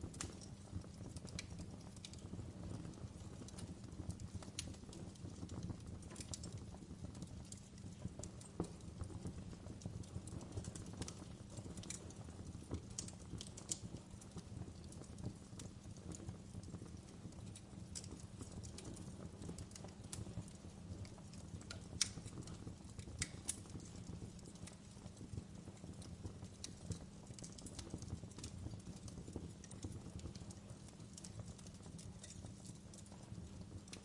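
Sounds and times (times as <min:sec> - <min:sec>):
fire crackling and popping: 0:00.0 - 0:34.0
wood fire rumbling: 0:00.0 - 0:34.0.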